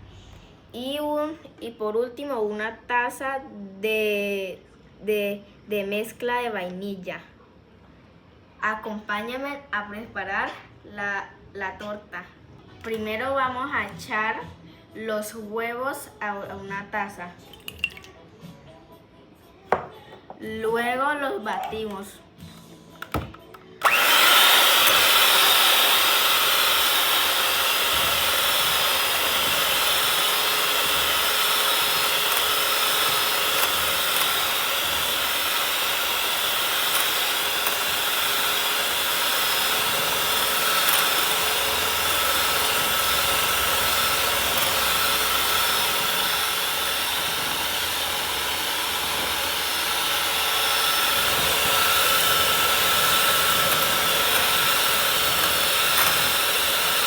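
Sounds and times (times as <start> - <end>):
electric mixer motor whine: 23.0 - 57.0.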